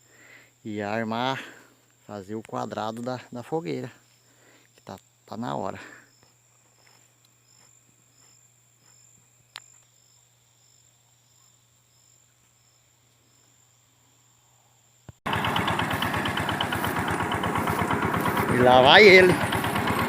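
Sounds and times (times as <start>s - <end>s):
insects chirping: 0.0s - 19.9s
small tractor engine running: 15.2s - 20.0s.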